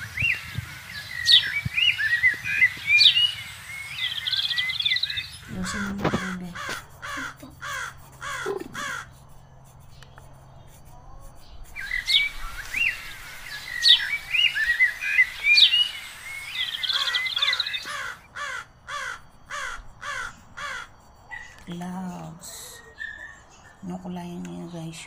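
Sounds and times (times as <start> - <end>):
repeated falling bird calls: 0.0 - 9.2, 11.5 - 21.8
birds chirping and whistling: 0.0 - 22.0.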